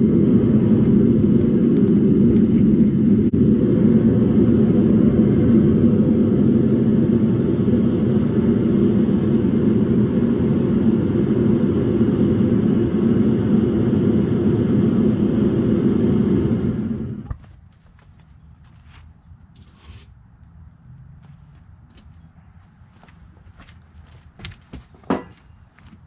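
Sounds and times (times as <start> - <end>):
furnace burner rumbling: 0.0 - 17.4.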